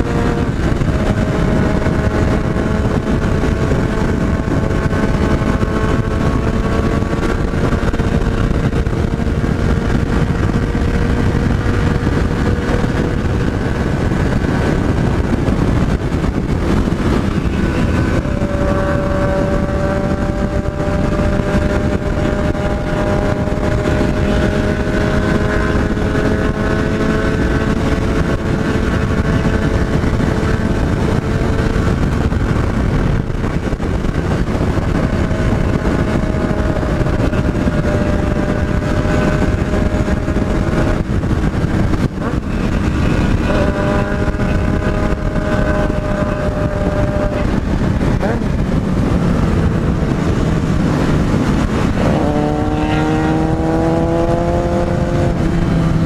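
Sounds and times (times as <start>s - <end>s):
motorcycle engine running hard: 0.0s - 56.0s
wind noise on microphone: 0.0s - 56.0s.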